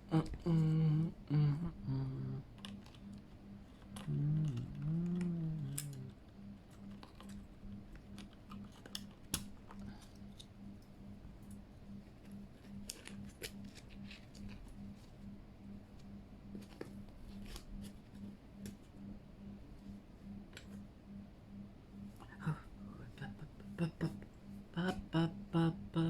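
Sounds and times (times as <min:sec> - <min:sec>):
low voice: 0:00.0 - 0:02.4, 0:04.0 - 0:06.1, 0:22.2 - 0:24.2, 0:24.8 - 0:26.0.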